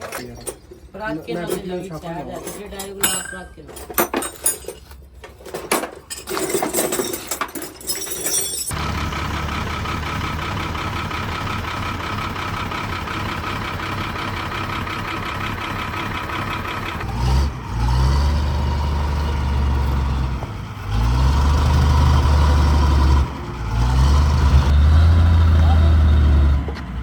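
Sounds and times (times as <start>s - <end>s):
truck engine revving: 8.7s - 27.0s.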